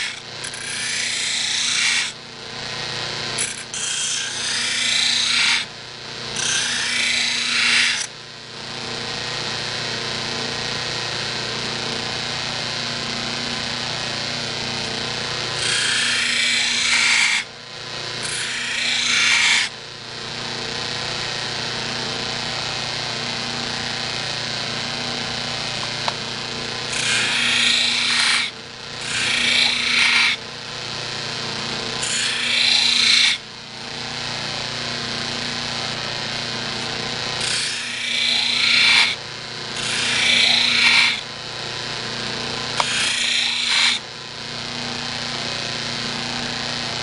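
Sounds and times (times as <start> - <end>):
knife grinding on wheel: 0.0 - 2.2, 3.3 - 5.7, 6.4 - 8.1, 15.6 - 17.4, 18.2 - 19.7, 26.9 - 30.4, 32.0 - 33.4, 36.7 - 39.2, 39.8 - 41.2, 42.8 - 44.0
buffer motor running: 0.0 - 47.0.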